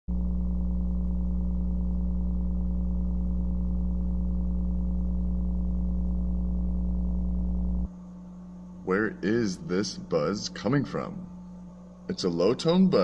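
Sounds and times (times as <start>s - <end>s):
low electrical buzz: 0.1s - 13.0s.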